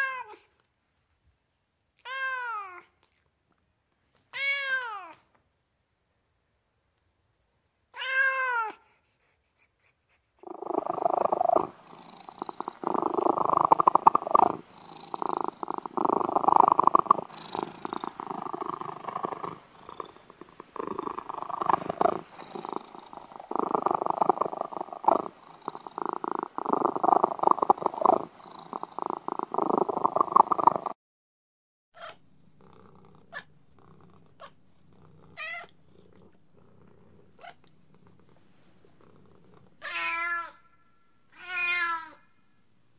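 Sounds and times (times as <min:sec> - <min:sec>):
cat meowing: 0:02.0 - 0:02.9, 0:08.0 - 0:08.8, 0:39.8 - 0:40.7, 0:41.3 - 0:42.3
cat purring: 0:10.4 - 0:31.0, 0:32.2 - 0:39.8.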